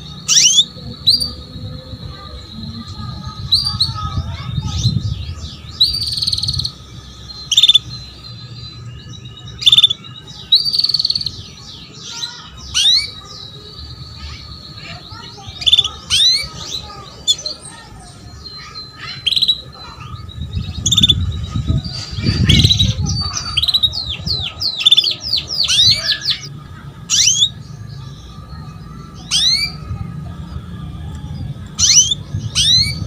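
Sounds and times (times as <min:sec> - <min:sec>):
canary chirping: 0:00.0 - 0:30.6, 0:31.4 - 0:33.0.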